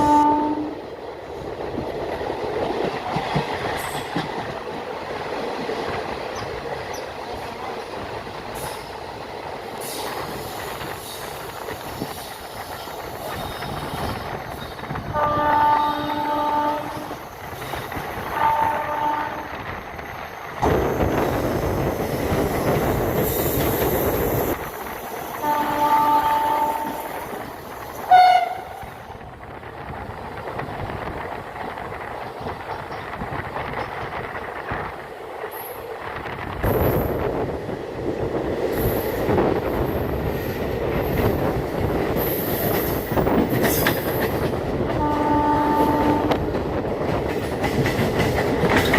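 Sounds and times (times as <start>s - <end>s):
locomotive horn blast: 0.0s - 0.8s, 15.1s - 17.2s, 18.3s - 19.5s, 25.4s - 27.2s, 28.1s - 29.0s, 45.0s - 46.5s
train wheels rumbling: 0.0s - 48.9s.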